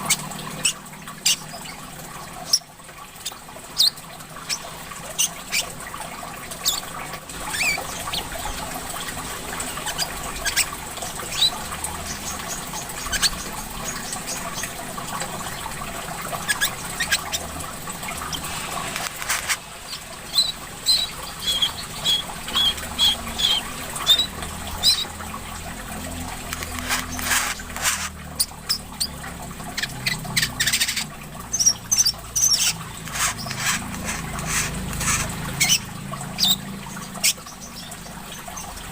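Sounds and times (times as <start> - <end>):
trickling water: 0.0 - 38.9
songbirds chirping: 19.9 - 27.3.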